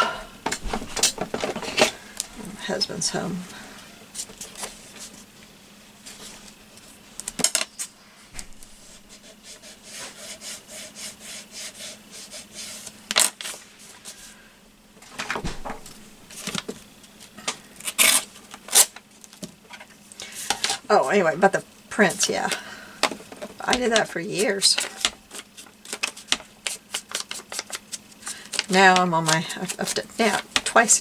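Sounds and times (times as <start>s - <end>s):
paper rustling: 0.5s - 2.0s, 23.7s - 30.8s
paper rubbing on table: 8.4s - 14.2s
sharp knocks: 15.4s - 16.4s.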